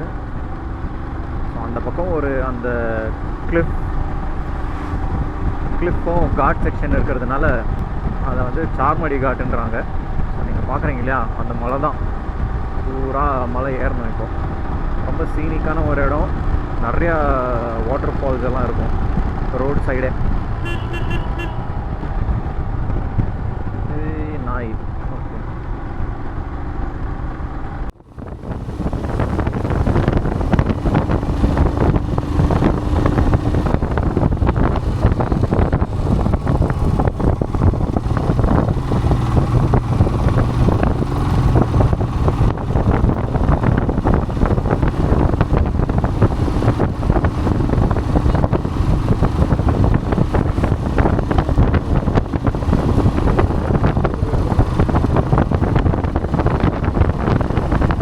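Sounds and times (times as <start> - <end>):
wind buffeting microphone: 0.0 - 24.1, 24.8 - 58.0
motorcycle engine running: 0.0 - 58.0.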